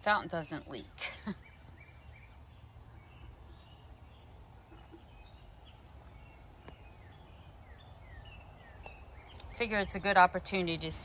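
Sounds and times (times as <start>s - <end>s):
low steady rumble: 0.0s - 11.0s
faint bird chirps: 0.9s - 10.0s.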